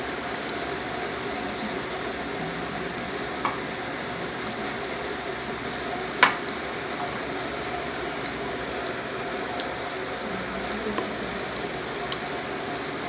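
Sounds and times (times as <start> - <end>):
steady hiss: 0.0 - 13.0
spoon knocking on plate: 6.2 - 6.4.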